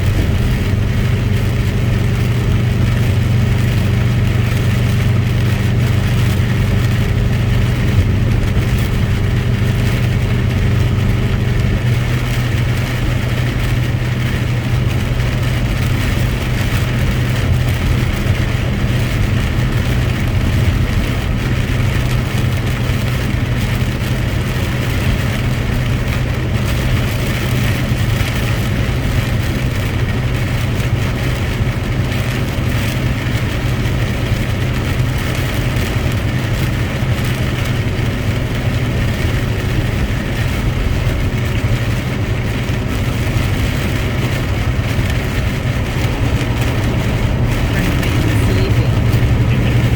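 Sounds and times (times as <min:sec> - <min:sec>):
road noise: 0:00.0 - 0:49.9
truck engine running: 0:00.0 - 0:49.9.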